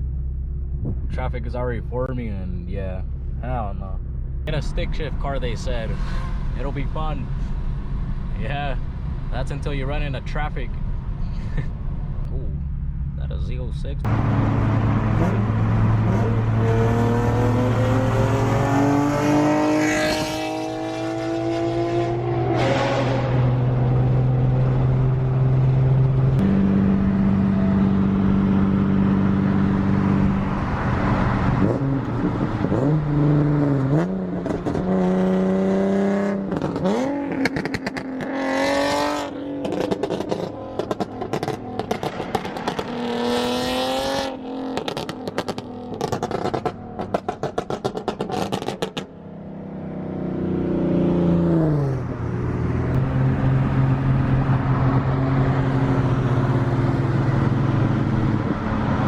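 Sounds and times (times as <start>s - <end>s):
car engine revving: 0.0s - 59.0s
exhaust crackling: 22.2s - 49.2s.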